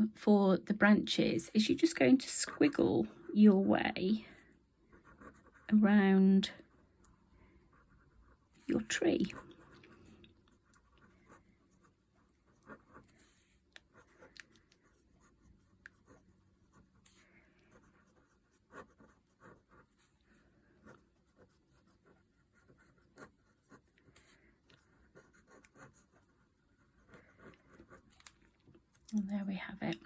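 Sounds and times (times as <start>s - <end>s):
pen nib scratching on paper: 4.3s - 20.1s, 20.8s - 28.3s.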